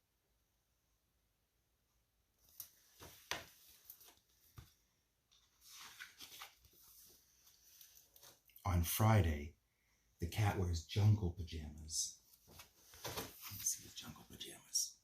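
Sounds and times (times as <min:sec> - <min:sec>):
book pages turning: 0:02.5 - 0:08.4.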